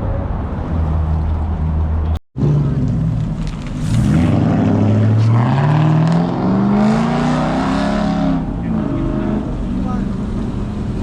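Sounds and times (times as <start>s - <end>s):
car engine revving up: 2.4s - 11.0s.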